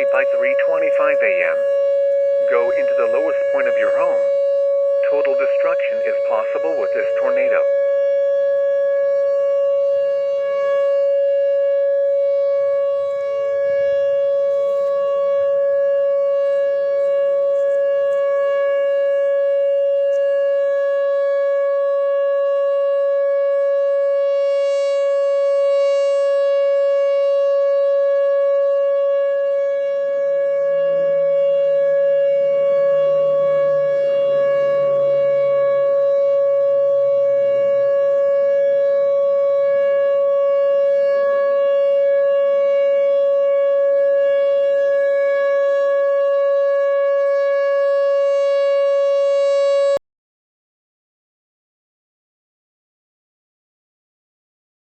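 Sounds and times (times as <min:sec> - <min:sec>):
steady siren tone: 0:00.0 - 0:50.0.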